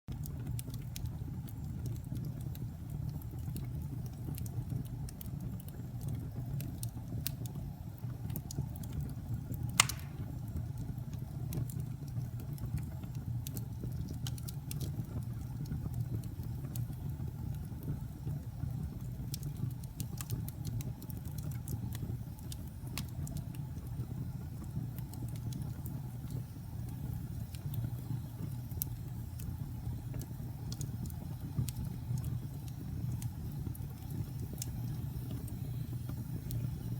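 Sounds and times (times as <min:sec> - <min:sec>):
burning wood crackling: 0:00.1 - 0:36.9
flames rumbling: 0:00.1 - 0:36.9
loud sharp pop: 0:09.8 - 0:10.4.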